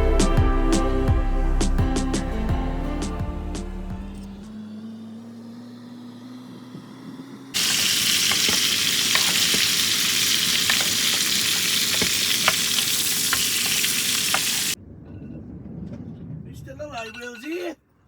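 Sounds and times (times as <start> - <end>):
food sizzling in a frying pan: 7.6 - 14.8.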